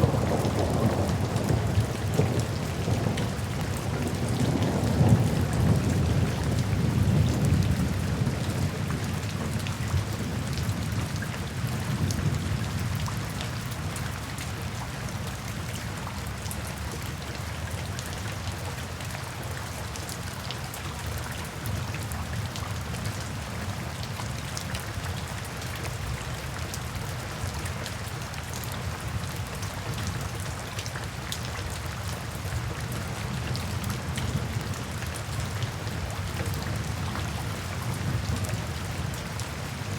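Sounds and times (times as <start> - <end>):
low rumble of thunder: 0.0 - 14.2
rain falling in a forest: 0.0 - 39.9.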